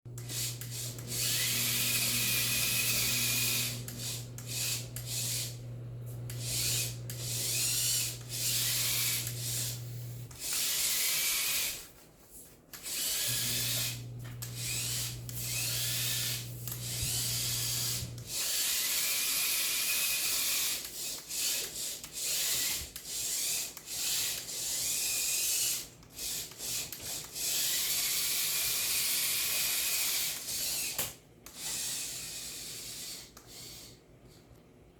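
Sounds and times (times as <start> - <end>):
steady low hum: 0.1 - 11.0, 11.6 - 18.4
small motors whirring: 0.1 - 11.9, 12.7 - 34.0.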